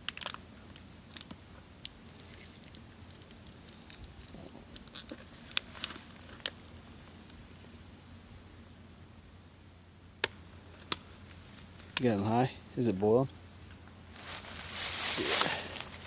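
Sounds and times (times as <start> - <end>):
camp stove hissing: 14.2 - 16.0.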